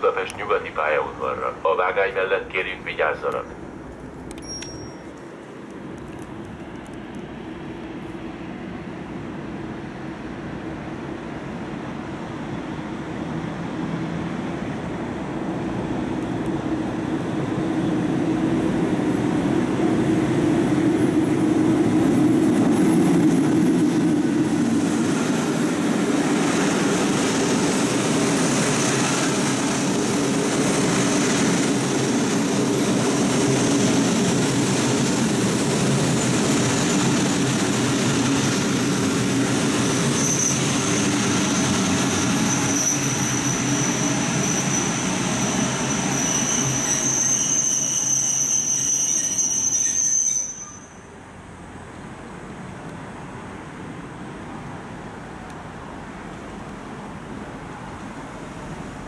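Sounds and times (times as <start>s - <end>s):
passenger train rumble: 0.0s - 59.0s
high-pitched wheel squeal: 40.0s - 51.2s.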